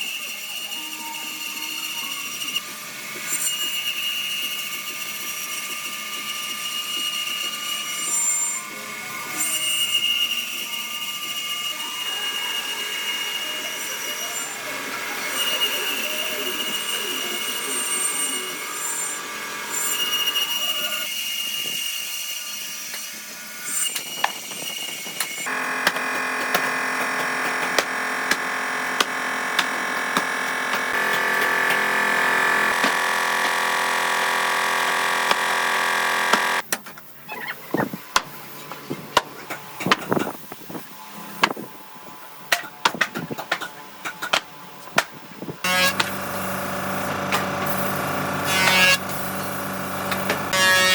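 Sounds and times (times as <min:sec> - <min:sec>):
woodworking machine whining: 0:00.0 - 0:36.7, 0:39.5 - 0:50.9
sharp knocks and clacks of woodwork: 0:25.2 - 0:31.8, 0:36.3 - 0:37.0, 0:42.5 - 0:45.2.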